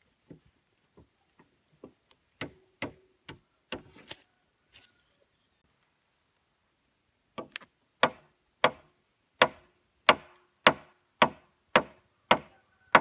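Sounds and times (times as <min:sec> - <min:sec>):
hand tool striking wood: 0:09.4 - 0:13.0.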